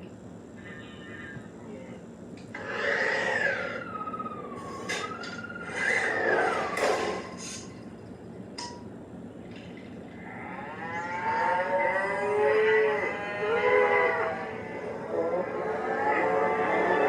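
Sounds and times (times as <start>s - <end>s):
cattle mooing: 10.2s - 17.0s.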